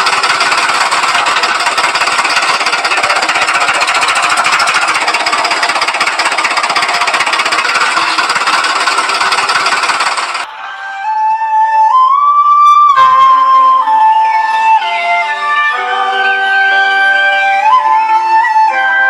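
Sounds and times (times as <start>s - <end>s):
miniature engine clattering: 0.0s - 10.5s.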